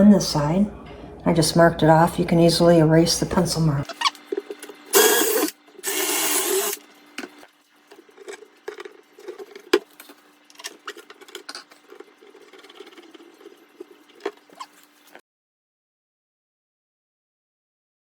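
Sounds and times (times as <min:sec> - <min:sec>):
power drill drilling: 0:04.9 - 0:06.8.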